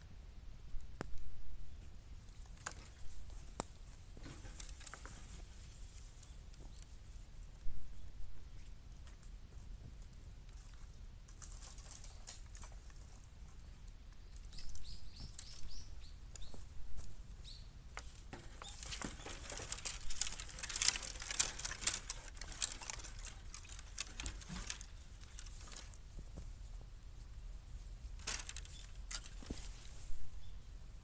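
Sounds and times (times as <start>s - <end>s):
bamboo fire crackling and snapping: 2.3s - 6.9s, 9.0s - 13.1s, 17.9s - 26.4s, 28.0s - 30.1s.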